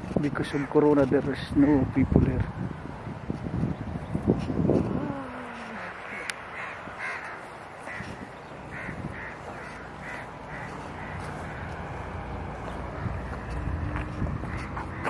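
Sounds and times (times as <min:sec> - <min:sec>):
bird calling: 0:05.0 - 0:13.7.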